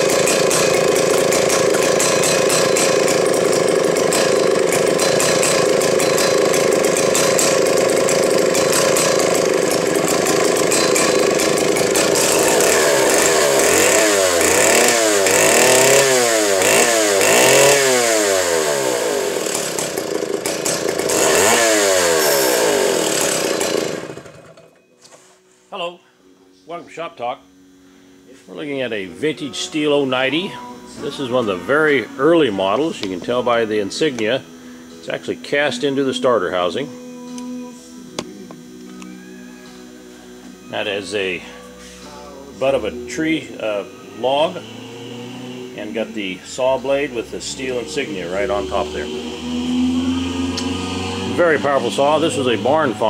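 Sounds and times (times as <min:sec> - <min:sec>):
chainsaw engine revving: 0:00.0 - 0:24.8, 0:40.7 - 0:53.0.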